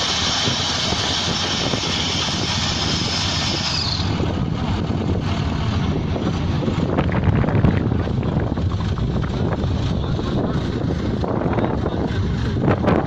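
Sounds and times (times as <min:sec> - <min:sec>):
hiss of air: 0:00.0 - 0:04.3
drilling rig drone: 0:00.0 - 0:13.0.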